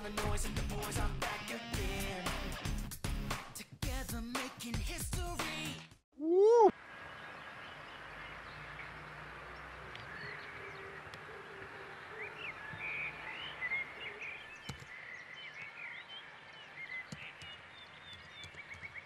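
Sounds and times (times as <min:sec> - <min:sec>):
small birds chirping: 0:07.0 - 0:19.0.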